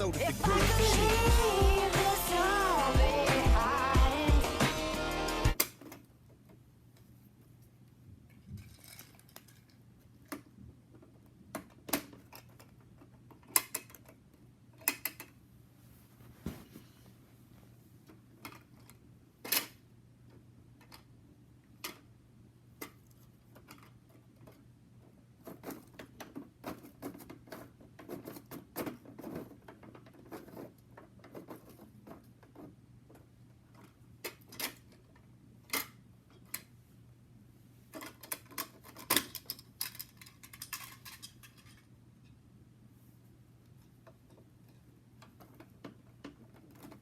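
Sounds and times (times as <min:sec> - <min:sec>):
plastic toy parts clicking: 0:08.6 - 0:15.4, 0:37.9 - 0:41.8.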